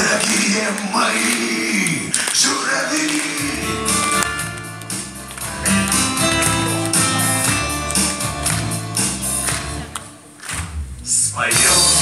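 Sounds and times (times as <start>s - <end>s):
steady drum beat: 3.1s - 12.0s
strummed guitar: 3.3s - 10.3s
bass line: 3.4s - 12.0s.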